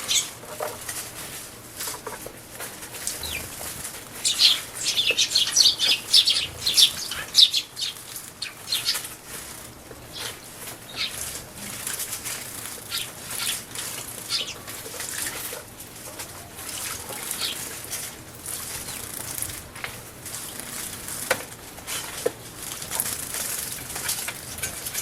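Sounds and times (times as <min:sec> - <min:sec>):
birds wing-fluttering: 0:00.0 - 0:25.0
birds splashing in water: 0:02.6 - 0:25.0.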